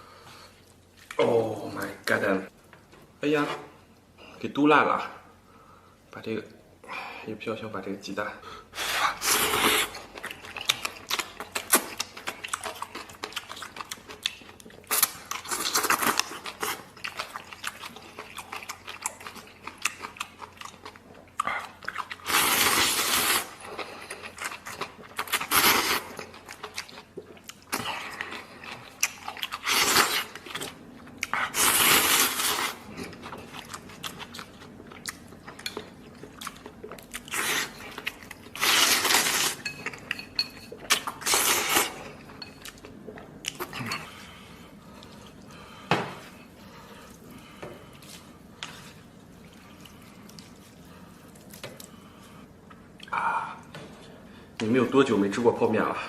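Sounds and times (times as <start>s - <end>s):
wet chewing and smacking: 9.8s - 22.4s, 23.0s - 31.6s, 32.2s - 53.8s
slurping noodles: 31.3s - 32.9s.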